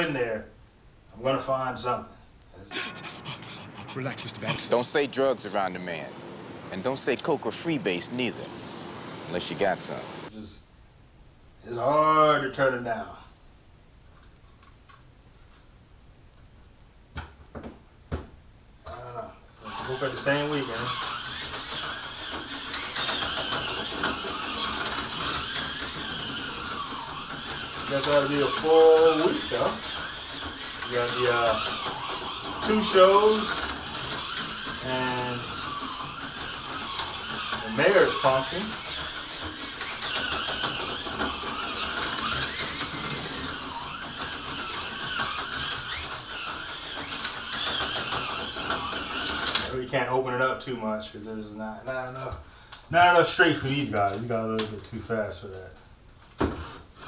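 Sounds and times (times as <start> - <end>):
small electric motors whirring: 18.9 - 50.6.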